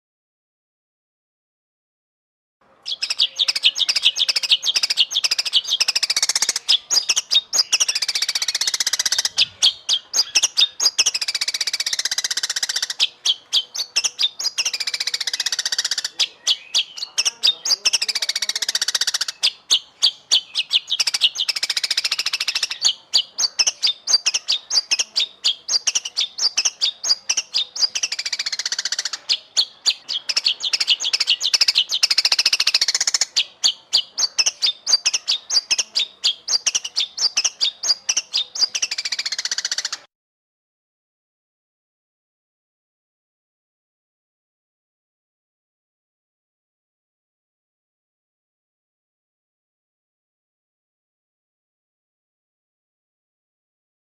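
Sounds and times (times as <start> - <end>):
songbird singing rapid chirps: 2.6 - 40.1.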